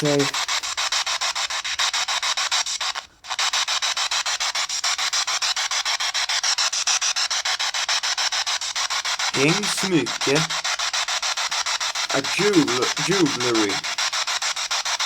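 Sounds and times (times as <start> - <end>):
radio static pulsing: 9.4 - 10.5, 12.1 - 13.8.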